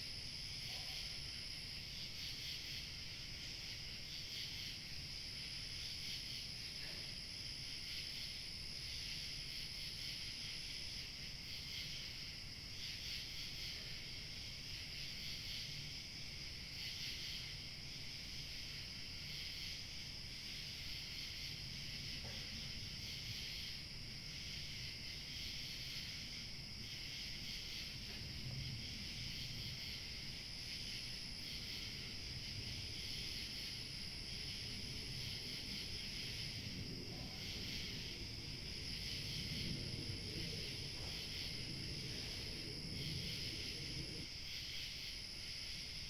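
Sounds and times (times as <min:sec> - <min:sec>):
crickets chirping: 0:00.0 - 0:46.0
low wind rumble: 0:26.0 - 0:44.4.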